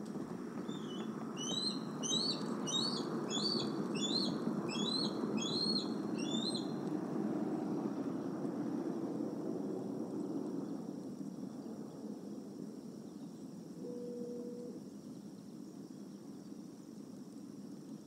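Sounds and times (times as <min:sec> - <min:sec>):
bird chirping: 0:00.6 - 0:06.7.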